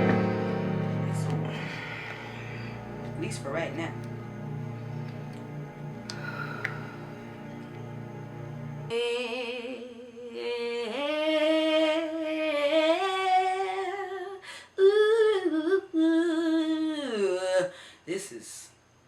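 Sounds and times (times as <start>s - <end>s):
person humming a slow tune: 0.0s - 3.1s, 5.1s - 8.2s
soft background music: 0.0s - 9.0s.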